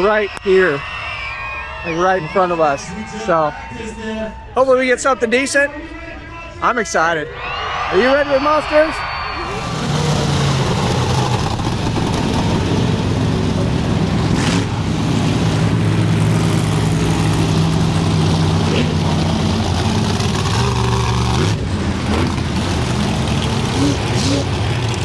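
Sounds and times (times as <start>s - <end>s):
monster truck engine running: 9.4s - 25.0s.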